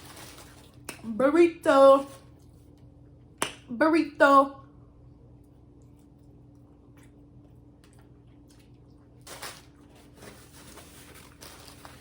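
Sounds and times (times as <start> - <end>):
steady low hum: 0.0 - 12.0
squishy crunch of eating: 5.4 - 12.0.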